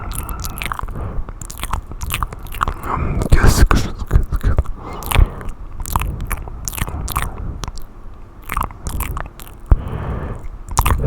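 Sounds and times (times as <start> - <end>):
wet mouth clicks and pops: 0.0 - 11.0
soft breathy hiss: 2.7 - 8.1, 9.1 - 11.0.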